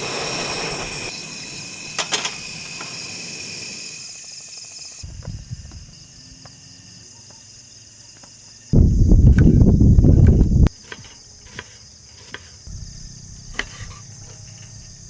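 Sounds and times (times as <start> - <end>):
insects trilling: 0.0 - 15.0
loud low rushing rumble: 12.7 - 13.6.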